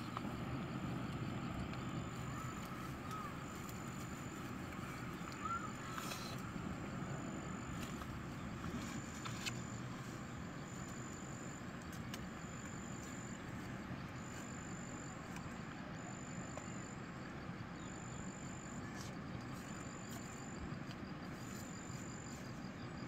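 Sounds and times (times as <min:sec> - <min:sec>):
insect calling in high pulses: 0:01.2 - 0:17.0.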